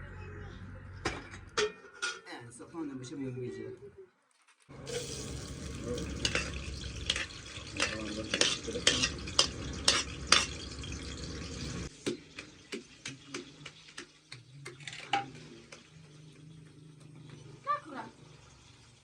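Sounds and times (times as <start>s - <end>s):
food sizzling in hot oil: 4.7s - 19.0s
metal spoon scraping a pot: 4.9s - 11.9s.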